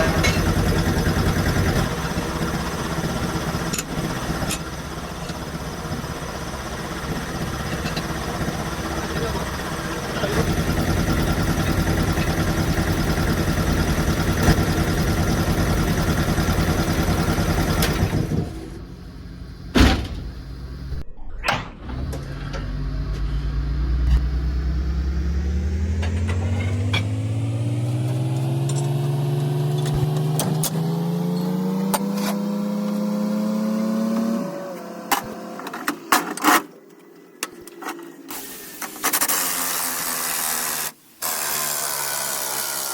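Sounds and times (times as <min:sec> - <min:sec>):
machine running steadily: 0:00.0 - 0:21.0
motor with rising pitch: 0:21.1 - 0:35.5.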